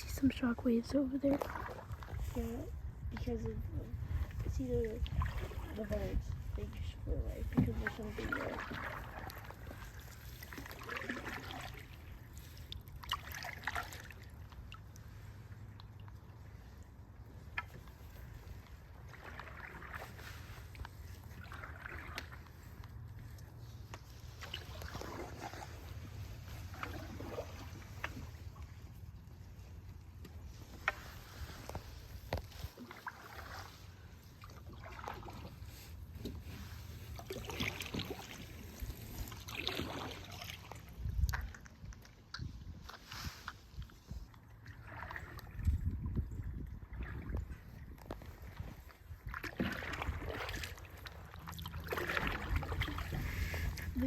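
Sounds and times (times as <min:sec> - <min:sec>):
paddles splashing in water: 0:00.0 - 0:54.0
paddle knock: 0:07.4 - 0:09.8.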